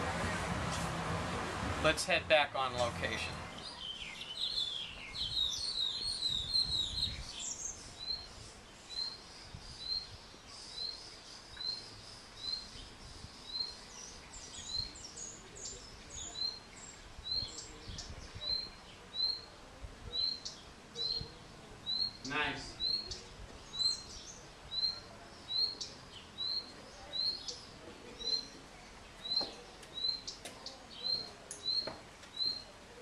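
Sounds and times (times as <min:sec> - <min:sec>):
small songbird chirping: 0:03.5 - 0:32.7.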